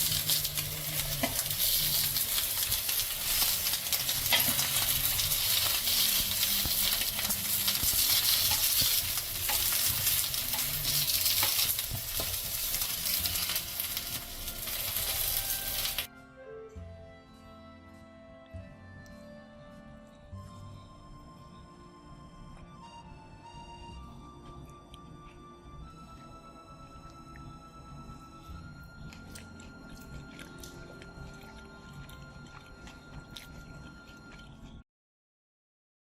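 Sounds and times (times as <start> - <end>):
food sizzling in hot oil: 0.0 - 16.1
soft music: 0.0 - 34.8.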